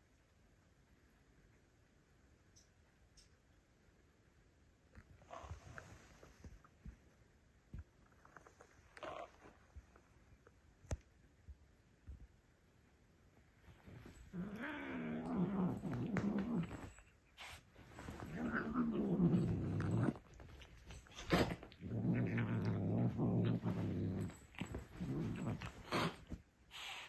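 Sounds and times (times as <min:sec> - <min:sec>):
cat growling and yowling: 0:14.3 - 0:17.0, 0:18.0 - 0:20.4, 0:21.1 - 0:26.3.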